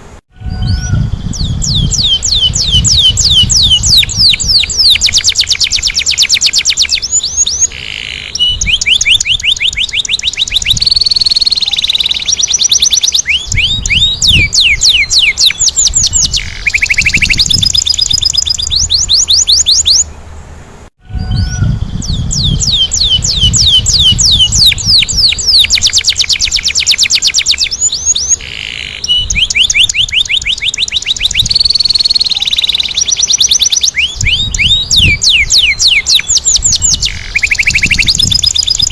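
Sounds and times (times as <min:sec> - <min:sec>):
canary singing trills: 0:00.4 - 0:20.3, 0:21.1 - 0:38.9.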